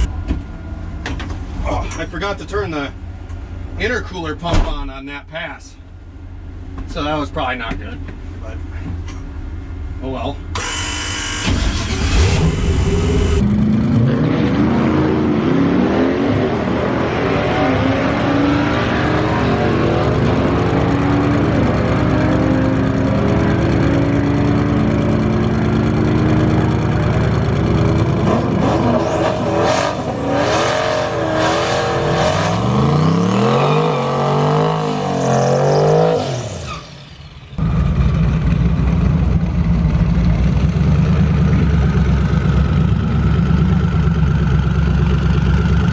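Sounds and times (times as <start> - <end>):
car engine revving: 10.6 - 38.2.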